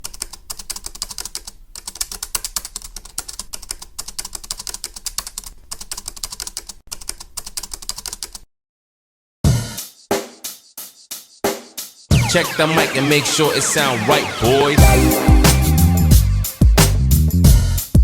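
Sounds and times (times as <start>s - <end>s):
rapid typing on keyboard: 0.0s - 8.5s.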